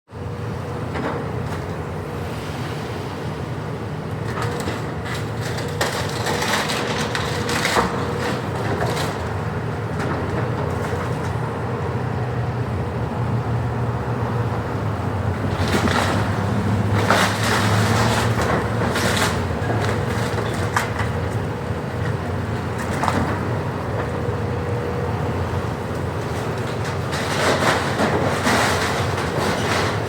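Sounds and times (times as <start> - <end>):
excavator engine running: 0.2 - 30.0
debris crunching and cracking: 4.2 - 11.3, 26.2 - 30.0.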